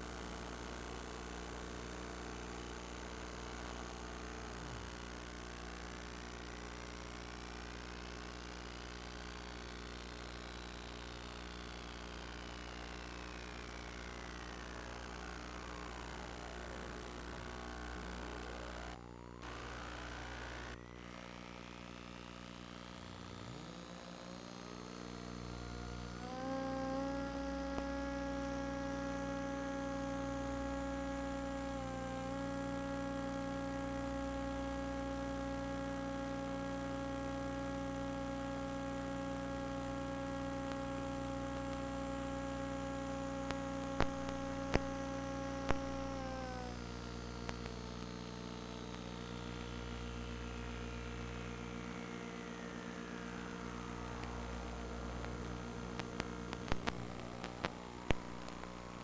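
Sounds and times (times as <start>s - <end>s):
high whine falling: 12.6s - 59.0s
drone propellers buzzing: 23.4s - 47.7s.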